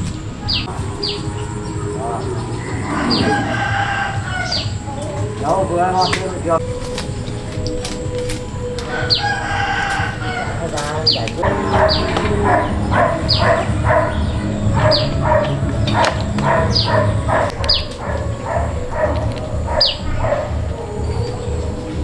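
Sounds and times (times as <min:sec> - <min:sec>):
animal calls falling in pitch: 0:00.5 - 0:06.2
low rumble: 0:06.5 - 0:22.0.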